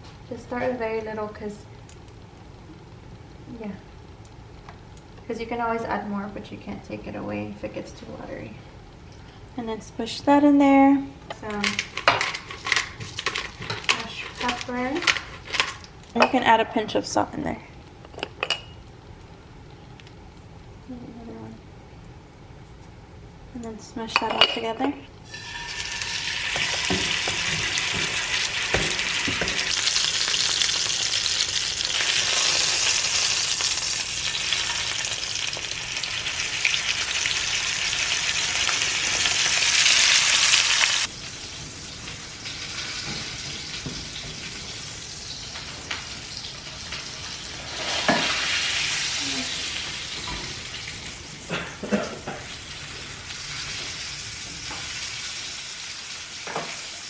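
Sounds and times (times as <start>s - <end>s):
steaks sizzling in skillet: 25.2s - 51.5s, 52.4s - 57.0s.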